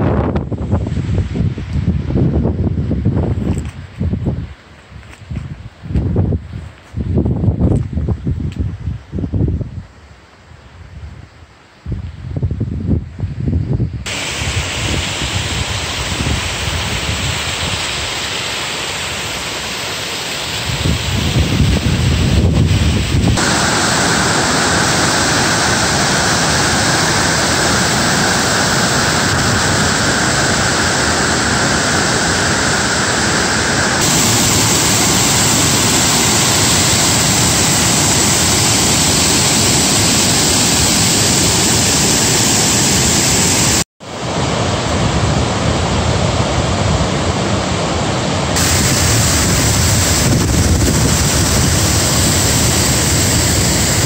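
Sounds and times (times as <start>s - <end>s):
rushing creek water roaring: 14.1s - 54.0s.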